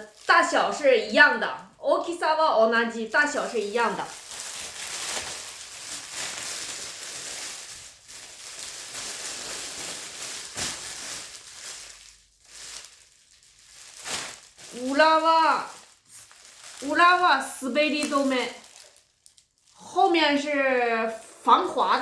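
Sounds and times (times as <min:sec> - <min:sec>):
fabric bath mat rustling: 0:03.1 - 0:19.0.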